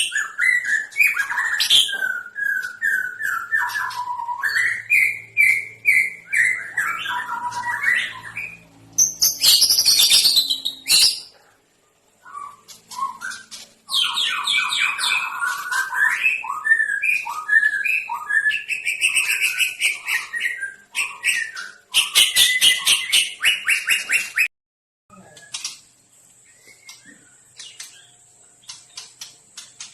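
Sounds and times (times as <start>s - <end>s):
songbird whistling and trilling: 0.0s - 11.3s, 12.2s - 24.5s.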